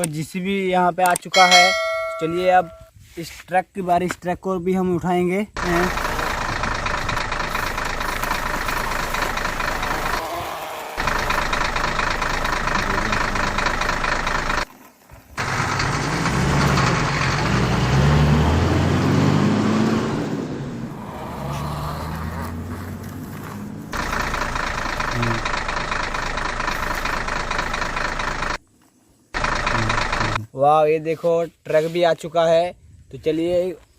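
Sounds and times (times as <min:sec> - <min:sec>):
engine-like running noise: 0:05.6 - 0:14.7, 0:15.4 - 0:28.6, 0:29.4 - 0:30.4.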